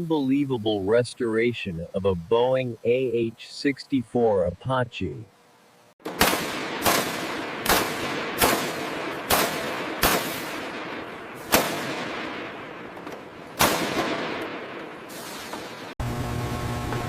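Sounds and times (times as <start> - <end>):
hissing decay: 5.9 - 16.0
sharp bangs: 6.0 - 16.0.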